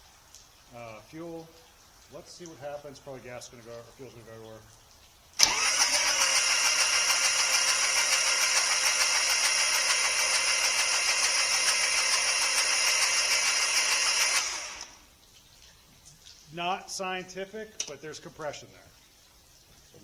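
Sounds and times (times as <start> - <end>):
diesel engine cranking on starter: 5.4 - 15.0.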